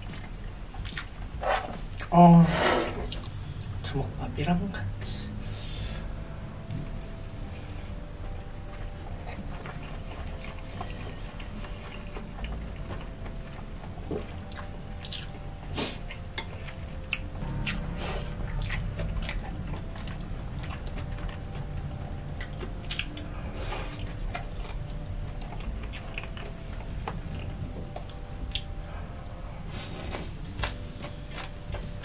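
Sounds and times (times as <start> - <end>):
close chewing: 0.0 - 2.1, 8.7 - 32.0.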